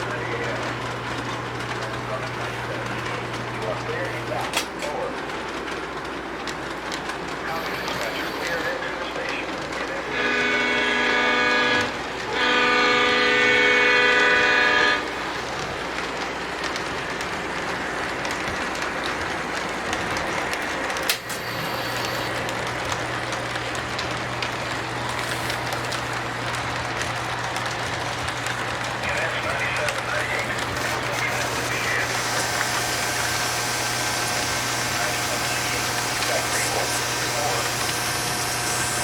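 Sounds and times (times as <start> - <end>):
light rail clicking: 0.0 - 39.0
model train running: 0.0 - 39.0
model train horn blasts: 10.1 - 15.3, 30.6 - 39.0.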